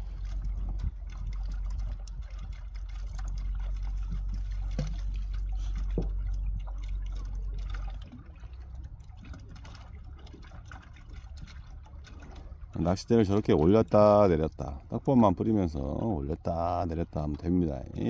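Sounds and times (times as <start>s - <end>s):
low rumble: 0.0s - 12.8s
water sloshing and trickling: 0.0s - 18.0s.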